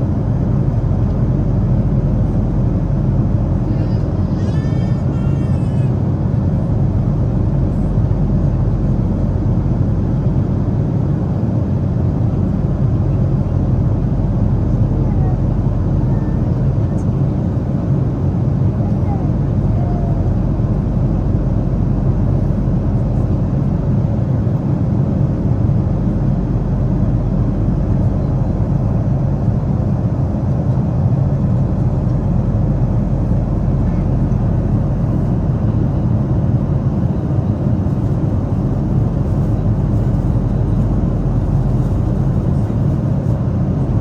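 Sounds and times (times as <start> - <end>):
airliner cabin engine rumble: 0.0 - 44.0.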